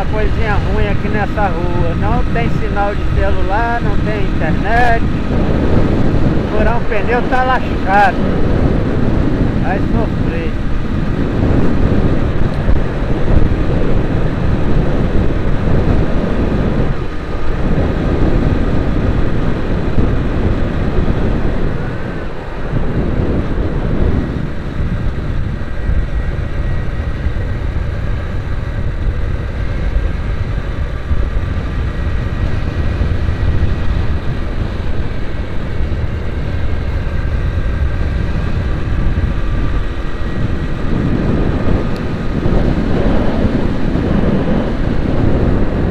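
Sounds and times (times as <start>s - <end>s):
vehicle engine and road noise: 0.0s - 45.9s.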